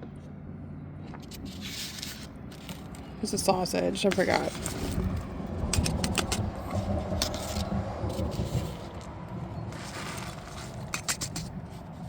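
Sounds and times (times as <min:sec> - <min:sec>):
scraping: 0:01.2 - 0:12.0.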